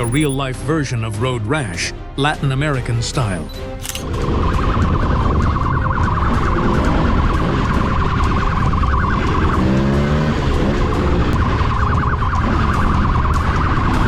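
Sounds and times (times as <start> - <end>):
engines rumbling: 0.0 - 0.4, 3.4 - 14.0
lower tone: 0.0 - 0.4
police siren warbling: 0.0 - 0.4, 4.0 - 14.0.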